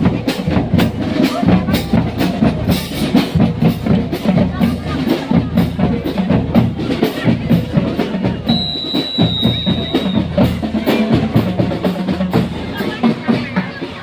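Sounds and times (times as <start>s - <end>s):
parade drums and percussion: 0.0s - 14.0s
high held tone: 8.5s - 10.6s.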